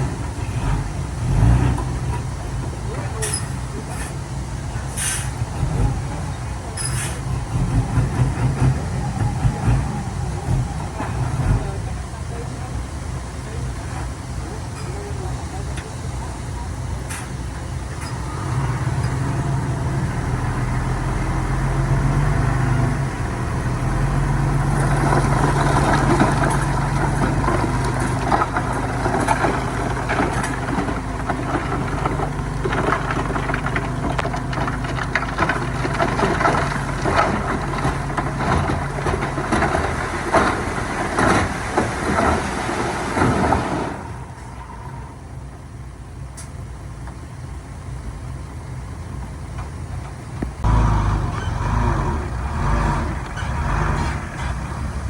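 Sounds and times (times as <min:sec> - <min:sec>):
diesel engine revving: 0:00.0 - 0:55.0
crunching and rattling: 0:23.3 - 0:43.8.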